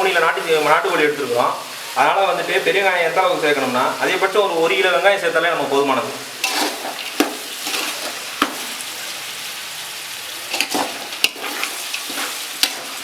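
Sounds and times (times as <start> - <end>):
onions sizzling in hot oil: 0.0 - 13.0
ladle knocking against pan: 7.2 - 7.5.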